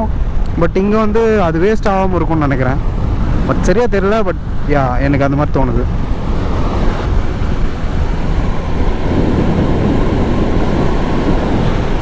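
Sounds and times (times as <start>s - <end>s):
motorcycle engine and road rumble: 0.0s - 12.0s
wind rushing over microphone: 0.0s - 12.0s.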